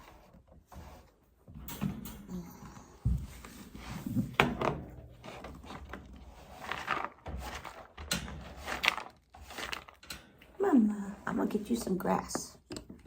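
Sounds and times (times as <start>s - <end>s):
rustling of things moved: 0.0s - 13.0s
knocks and thumps: 3.0s - 5.2s.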